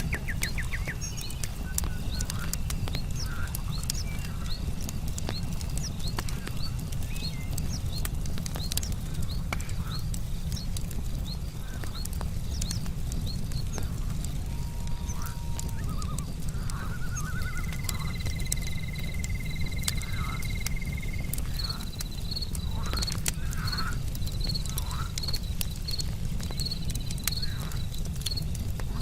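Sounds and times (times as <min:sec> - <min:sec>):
frogs croaking: 0:00.0 - 0:06.6, 0:09.0 - 0:10.1, 0:11.4 - 0:12.0, 0:13.5 - 0:29.0
wood fire crackling and popping: 0:00.0 - 0:29.0
insect trilling: 0:14.9 - 0:25.5
insects chirping: 0:15.0 - 0:28.6.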